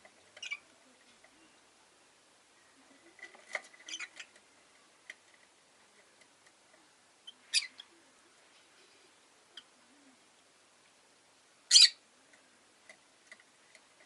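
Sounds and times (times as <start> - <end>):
lovebird chirps and clicks: 0.3 - 0.6.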